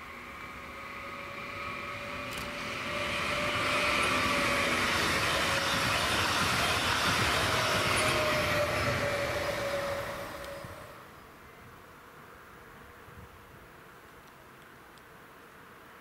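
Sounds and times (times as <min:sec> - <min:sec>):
wheels rushing on rail: 0:00.0 - 0:11.0
steady train whine: 0:00.0 - 0:11.2.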